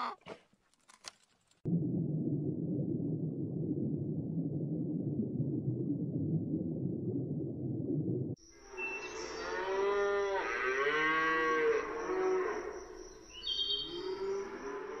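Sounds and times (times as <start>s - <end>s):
cow mooing: 9.4s - 12.7s.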